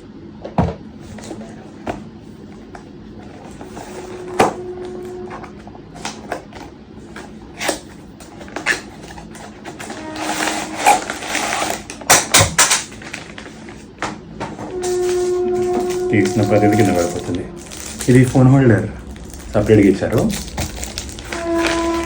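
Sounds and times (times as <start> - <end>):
packaging rustling: 1.0 - 22.0
packaging clicks and knocks: 6.0 - 18.4, 19.0 - 22.0.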